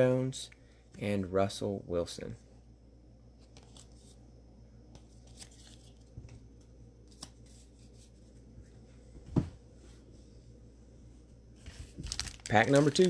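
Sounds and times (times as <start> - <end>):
cards and foil wrapper rustling: 5.0 - 6.1, 11.7 - 13.0.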